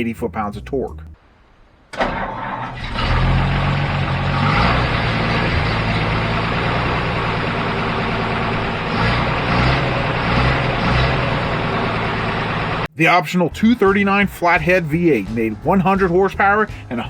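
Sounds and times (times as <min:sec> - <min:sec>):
truck engine running: 0:02.2 - 0:12.9.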